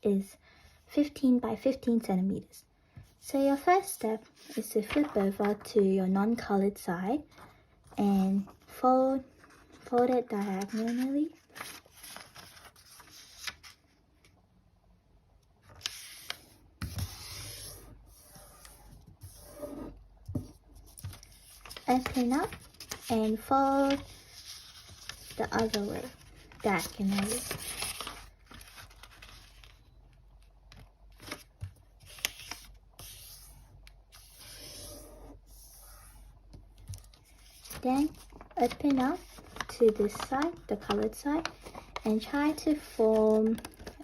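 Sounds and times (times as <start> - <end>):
paper rustling and rubbing: 4.2 - 5.6, 9.3 - 14.0, 15.7 - 29.8, 31.1 - 44.0
paper crackling: 4.3 - 5.8, 9.3 - 14.4, 15.6 - 19.6, 20.4 - 35.1, 35.8 - 44.0.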